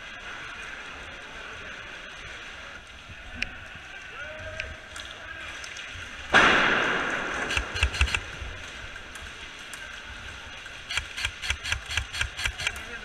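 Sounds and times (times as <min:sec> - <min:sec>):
sharp snaps: 0:07.4 - 0:08.3, 0:10.9 - 0:12.8.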